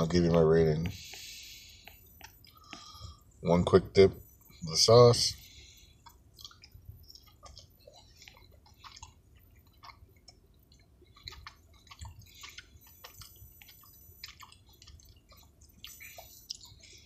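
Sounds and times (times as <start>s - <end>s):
person chewing crispy food: 5.4s - 17.0s.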